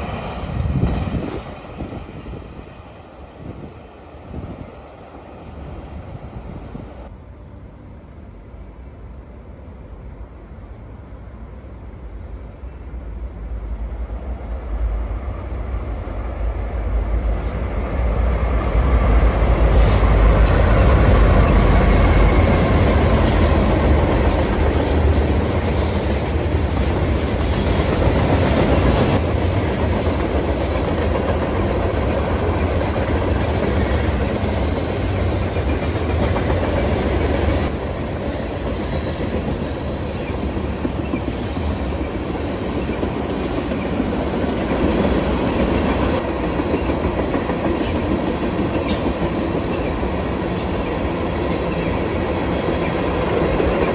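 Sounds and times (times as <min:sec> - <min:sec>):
train wheels clattering on rail: 0:16.2 - 0:53.9.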